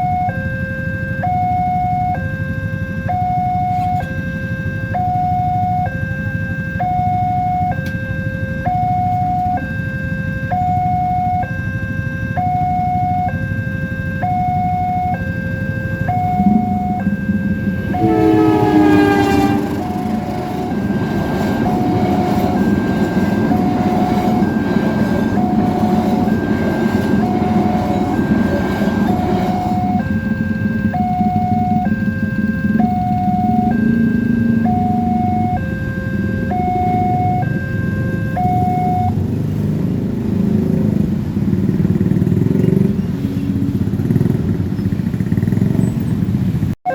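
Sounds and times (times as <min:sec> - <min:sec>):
level-crossing alarm two-tone warning: 0:00.0 - 0:39.2
locomotive horn: 0:01.0 - 0:09.7, 0:12.3 - 0:39.2
train rumbling past: 0:15.9 - 0:46.7.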